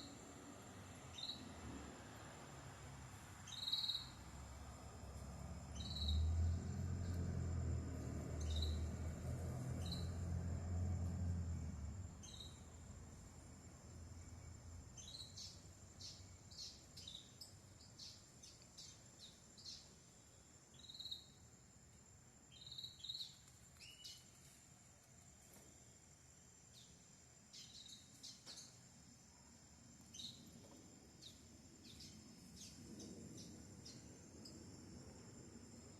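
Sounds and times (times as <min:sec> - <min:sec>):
canary chirping: 0:03.4 - 0:04.2, 0:08.4 - 0:08.9.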